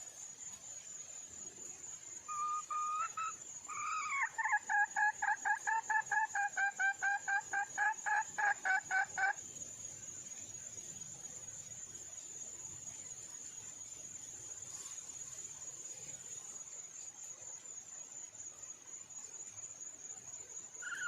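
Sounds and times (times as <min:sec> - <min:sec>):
insect trill: 0:00.0 - 0:21.0
junglefowl hen calling: 0:02.3 - 0:09.4, 0:20.8 - 0:21.0.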